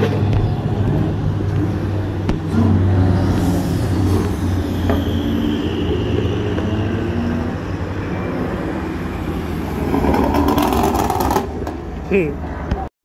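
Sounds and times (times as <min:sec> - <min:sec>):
race cars driving past: 0:00.0 - 0:12.9.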